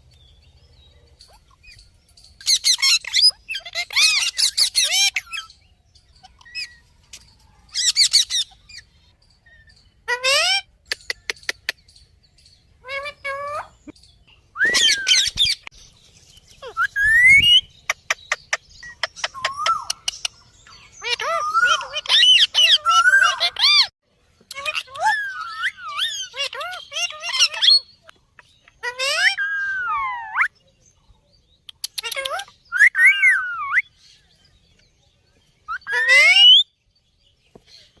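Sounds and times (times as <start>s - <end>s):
parrot calling and squawking: 2.4s - 6.9s, 7.7s - 11.8s, 12.8s - 13.9s, 14.6s - 15.7s, 16.6s - 23.9s, 24.5s - 30.5s, 31.8s - 33.9s, 35.7s - 36.6s
parrot whistled calls: 14.6s - 15.6s, 16.6s - 17.7s, 32.1s - 34.0s, 35.7s - 36.6s.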